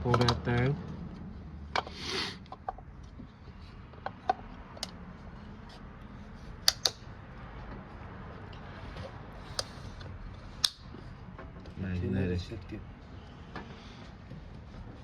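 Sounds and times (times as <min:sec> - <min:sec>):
short scraping hiss: 0:01.9 - 0:02.4.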